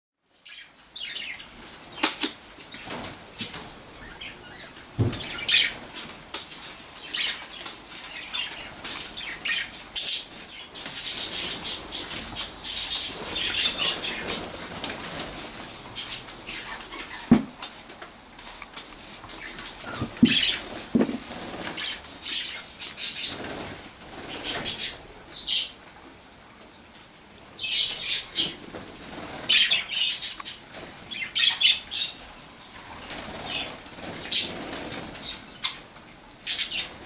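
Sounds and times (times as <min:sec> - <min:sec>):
budgies flapping wings: 0:05.0 - 0:17.6, 0:19.3 - 0:25.0, 0:27.9 - 0:32.1, 0:32.8 - 0:35.8.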